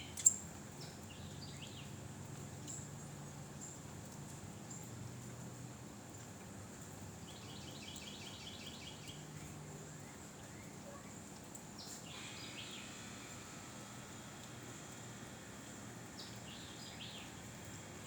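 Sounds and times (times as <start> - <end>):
bird singing: 0.0 - 1.9, 11.8 - 13.9, 16.0 - 18.0
steady hiss: 11.6 - 18.0.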